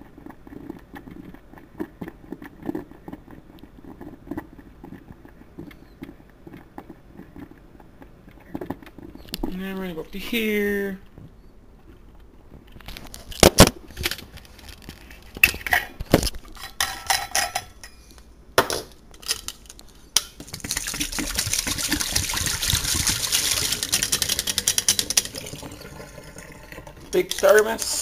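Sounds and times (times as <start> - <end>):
kitchenware knocks and clinks: 16.6 - 18.0, 18.6 - 18.9
flowing liquid: 20.5 - 28.0.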